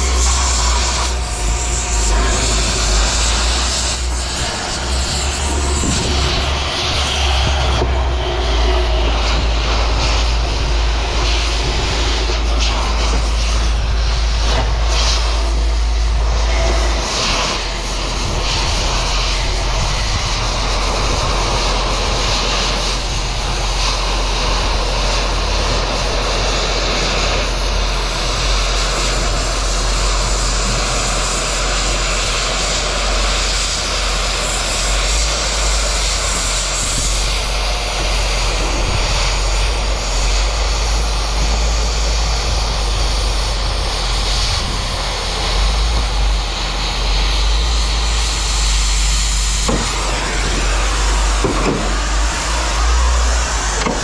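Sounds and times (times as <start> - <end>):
deep low hum: 0.0 - 27.0
machinery droning: 0.0 - 54.0.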